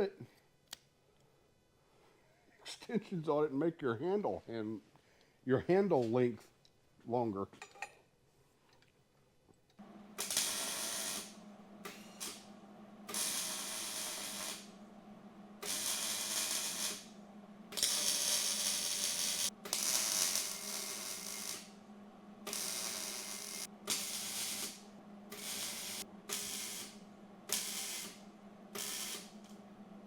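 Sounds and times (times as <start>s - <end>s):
steady low hum: 9.8s - 30.0s
welding hiss: 10.2s - 12.5s, 13.1s - 14.8s, 15.6s - 21.8s, 22.4s - 29.6s.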